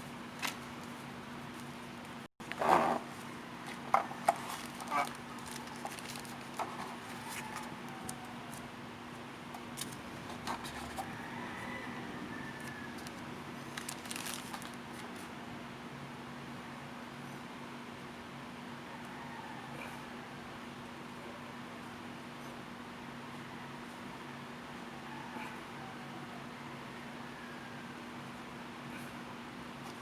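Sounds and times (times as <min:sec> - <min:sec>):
packaging rustling: 0:02.4 - 0:08.7, 0:12.6 - 0:15.3.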